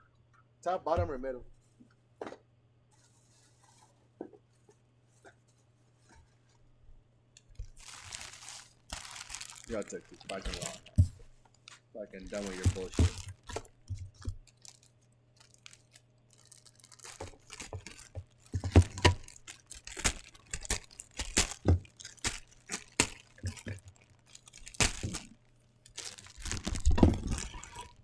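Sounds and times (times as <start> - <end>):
packaging tearing and crinkling: 7.4 - 28.0.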